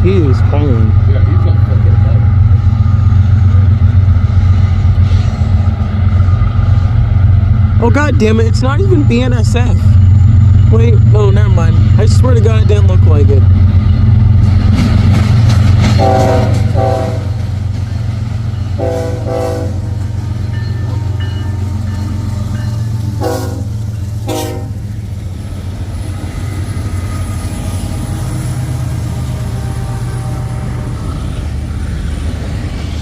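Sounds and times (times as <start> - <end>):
diesel locomotive rumble: 0.0 - 33.0
train horn blasts: 16.0 - 17.4, 18.8 - 19.9, 23.2 - 24.9, 29.4 - 31.0.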